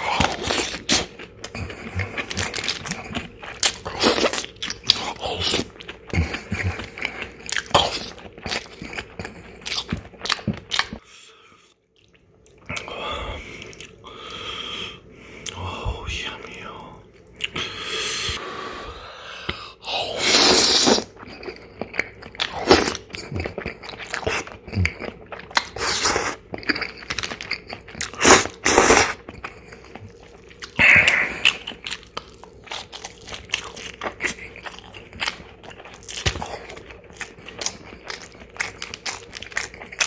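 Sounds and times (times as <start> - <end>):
person chewing crunchy food: 0.0 - 11.1, 19.5 - 40.0.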